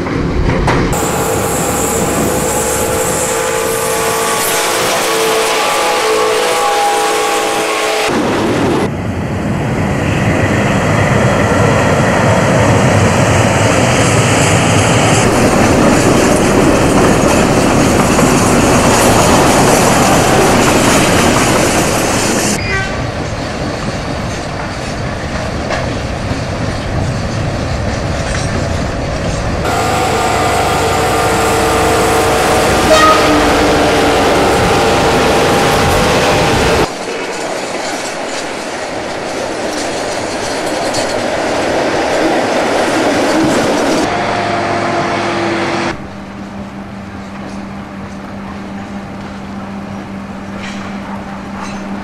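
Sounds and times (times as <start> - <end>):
trains passing on rails: 0.0 - 52.0
steady pitched drone: 0.9 - 4.5, 29.6 - 36.9.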